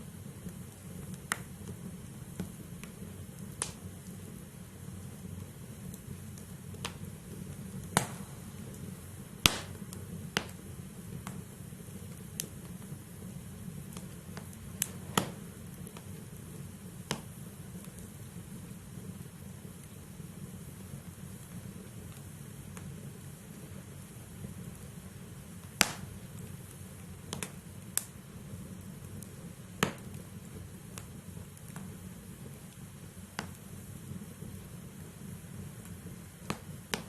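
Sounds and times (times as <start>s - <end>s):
fire crackling and popping: 0.0s - 37.0s
low rumble of fire: 0.0s - 37.0s.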